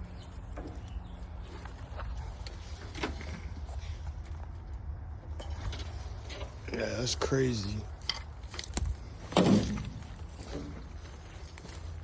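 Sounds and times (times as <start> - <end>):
footsteps on forest floor: 0.2 - 2.8, 8.4 - 12.0.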